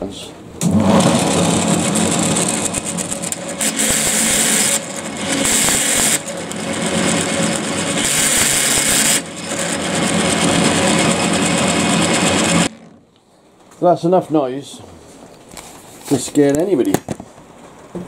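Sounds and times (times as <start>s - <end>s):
lathe gear noise: 0.6s - 13.0s
harsh high rattle: 0.6s - 13.1s.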